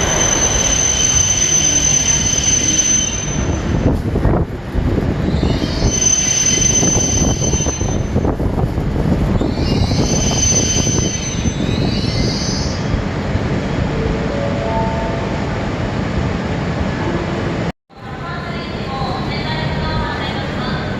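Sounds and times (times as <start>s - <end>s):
high wheel squeal: 0.0s - 3.9s, 5.2s - 8.2s, 9.3s - 12.9s
train wheels rumbling on rail: 0.0s - 14.4s.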